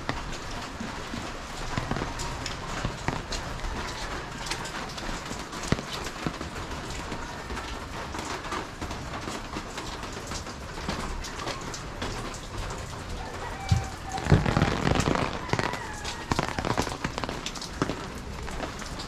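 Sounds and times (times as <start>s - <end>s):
steady rain: 0.0s - 19.0s
footsteps: 13.2s - 19.0s.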